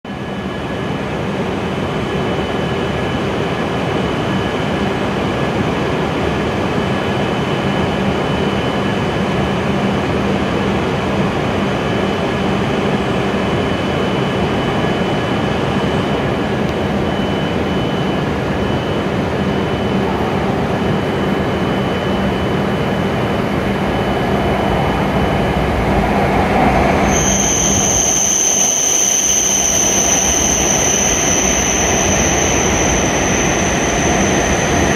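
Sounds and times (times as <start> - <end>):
high steady squeal: 11.7 - 34.9
train rumble: 16.3 - 34.9.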